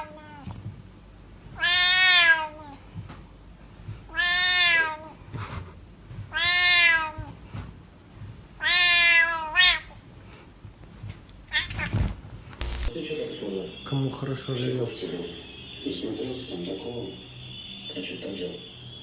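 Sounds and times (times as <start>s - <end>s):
cat meowing: 0.0s - 0.6s, 1.5s - 2.8s, 4.1s - 5.2s, 6.3s - 7.4s, 8.6s - 10.0s, 11.4s - 12.1s.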